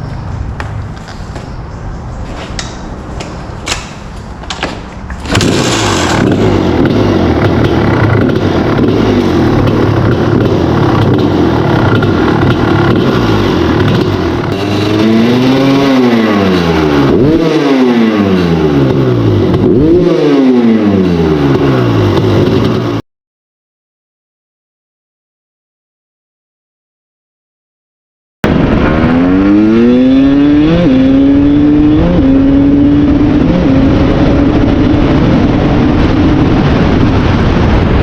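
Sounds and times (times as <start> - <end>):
two-stroke motorcycle engine running: 5.2 - 23.0.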